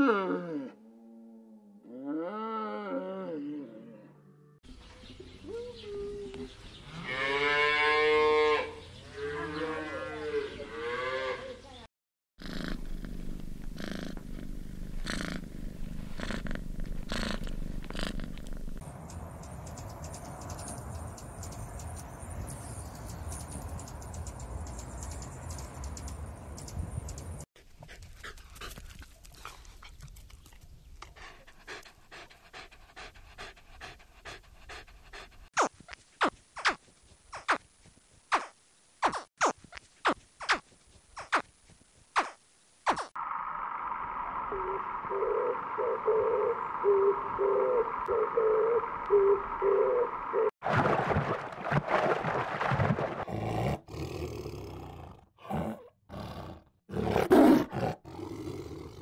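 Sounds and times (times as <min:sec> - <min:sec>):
cat purring: 0:12.4 - 0:18.8
dog panting: 0:27.6 - 0:35.5.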